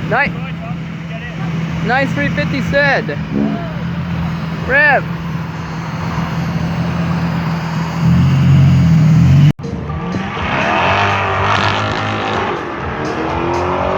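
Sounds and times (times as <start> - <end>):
wavering higher tones: 0.0 - 9.5
car engine idling and revving: 0.0 - 13.9.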